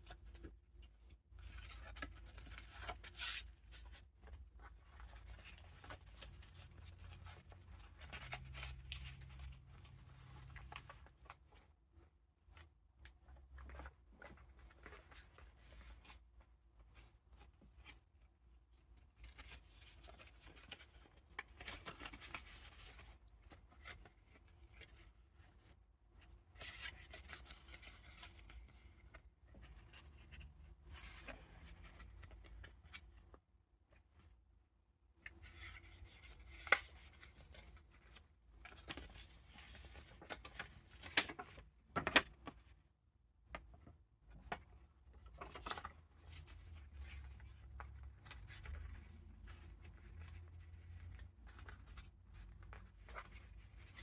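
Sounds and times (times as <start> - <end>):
paper rustling and crinkling: 1.4 - 11.6, 19.0 - 33.4, 35.2 - 42.7, 43.6 - 54.0.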